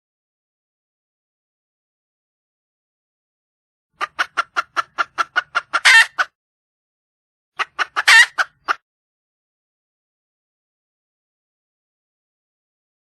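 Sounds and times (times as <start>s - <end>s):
hen clucking and squawking: 4.0s - 6.4s, 7.6s - 8.8s.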